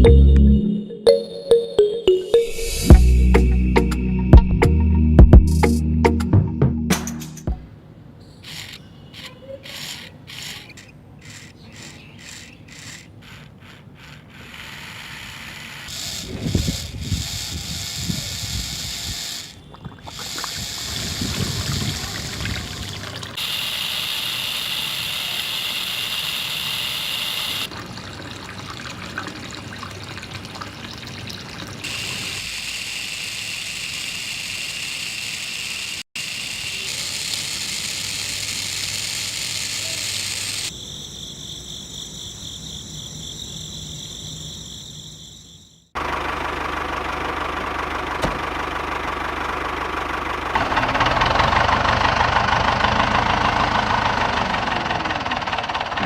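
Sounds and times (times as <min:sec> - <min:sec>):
water pouring and trickling: 0:19.7 - 0:23.4, 0:27.6 - 0:31.9.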